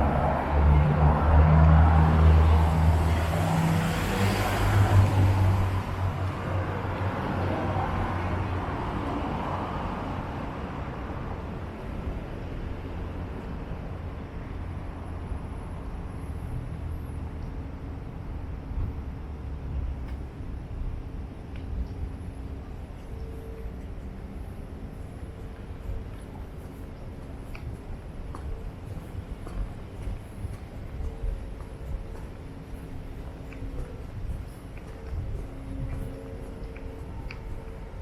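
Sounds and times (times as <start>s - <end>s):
vehicle passing by: 0.0s - 10.4s
distant road traffic: 0.0s - 38.0s.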